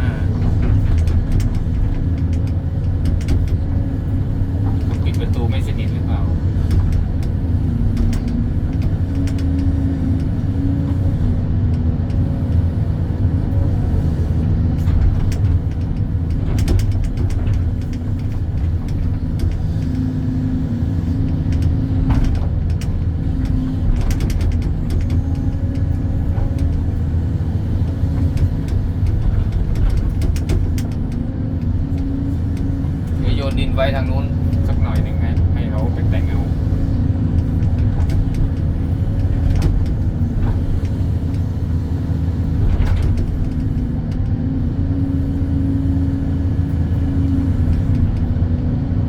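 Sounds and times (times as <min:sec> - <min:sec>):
excavator diesel engine running: 0:00.0 - 0:49.0.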